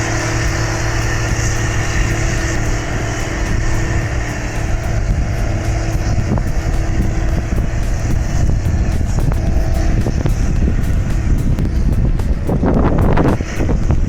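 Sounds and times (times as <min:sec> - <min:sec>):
tractor diesel engine under load: 0:00.0 - 0:14.0.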